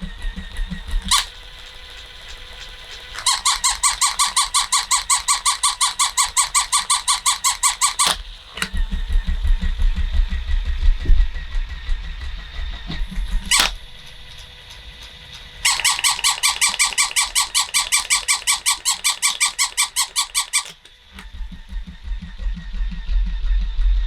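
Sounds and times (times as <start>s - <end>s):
toy motor humming: 0.4s - 10.0s, 13.0s - 21.3s
toy click: 0.5s - 9.3s, 13.5s - 13.8s, 15.6s - 21.3s.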